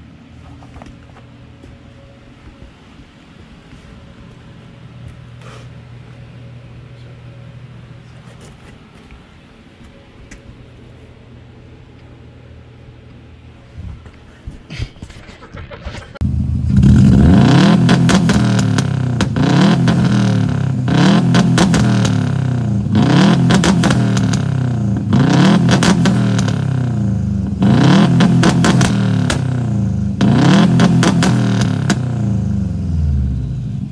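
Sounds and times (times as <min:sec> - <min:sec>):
low hum: 0:00.0 - 0:33.9
car engine revving: 0:16.2 - 0:33.9.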